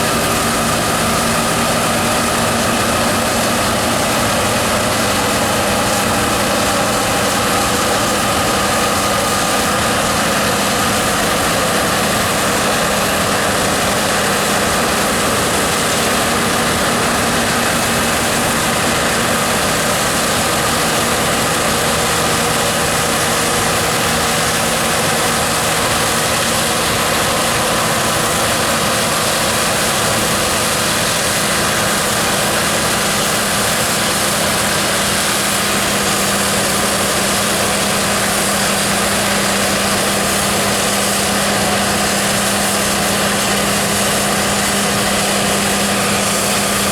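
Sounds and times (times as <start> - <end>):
combine harvester droning: 0.0 - 46.9.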